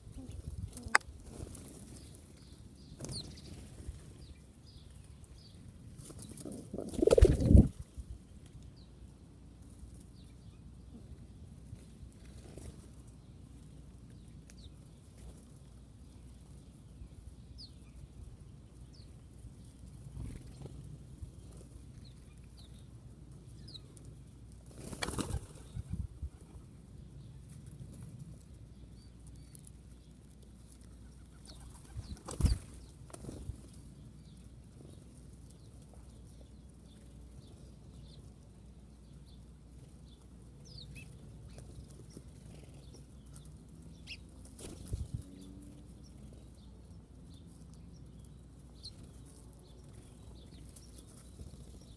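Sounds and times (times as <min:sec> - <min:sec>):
bird wings flapping: 0:06.0 - 0:07.7, 0:24.7 - 0:26.0, 0:31.5 - 0:33.7, 0:44.4 - 0:45.1.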